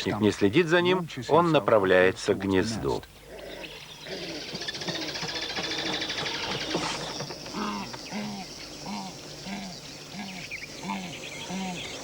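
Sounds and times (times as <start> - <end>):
insects pulsing high buzz: 2.8 - 12.0
ground hornbill deep booming: 3.3 - 11.2.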